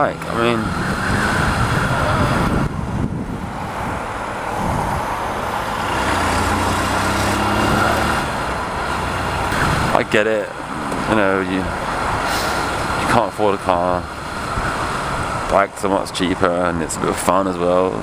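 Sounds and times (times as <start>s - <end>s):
road noise: 0.0s - 18.0s
traffic: 0.0s - 18.0s.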